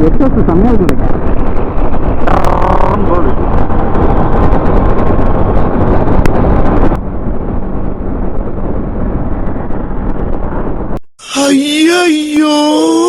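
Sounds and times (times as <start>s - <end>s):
wind buffeting microphone: 0.0s - 11.0s
road and engine rumble: 0.0s - 13.0s.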